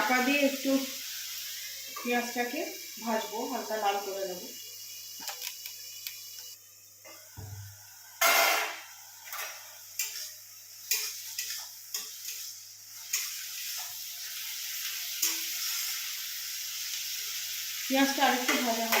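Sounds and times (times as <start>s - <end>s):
onion paste sizzling in oil: 0.0s - 19.0s
spatula scraping and knocking pan: 10.9s - 12.5s.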